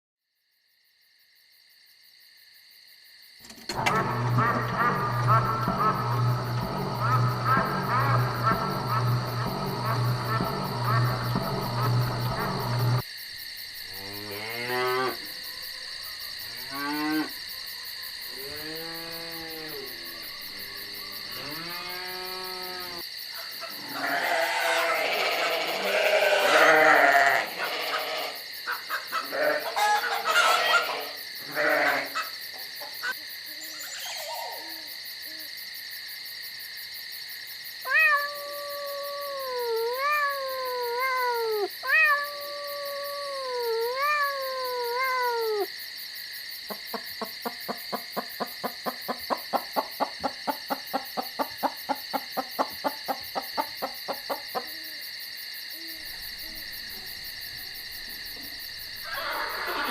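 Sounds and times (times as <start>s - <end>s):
steady high hum: 3.7s - 13.0s
rough animal calls: 3.8s - 13.0s, 23.7s - 32.4s, 37.9s - 45.7s, 59.0s - 59.9s
short pulsing animal calls: 4.0s - 13.0s
wavering pitched animal call: 4.4s - 13.0s, 37.9s - 45.7s, 59.0s - 59.9s.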